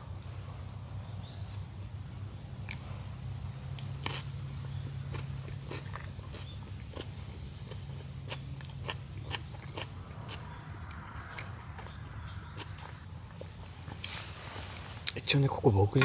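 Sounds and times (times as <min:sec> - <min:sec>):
low hum: 0:00.0 - 0:15.2
sandwich crunching: 0:03.7 - 0:14.1.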